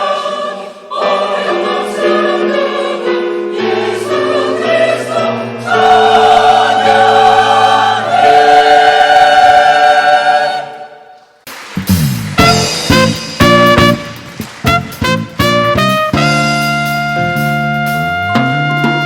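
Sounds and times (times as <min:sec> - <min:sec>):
choir singing in harmony: 0:00.0 - 0:11.3.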